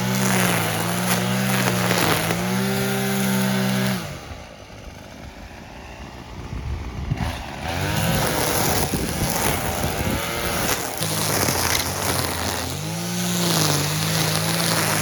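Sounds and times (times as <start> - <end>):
brush cutter engine revving: 0.0 - 15.0.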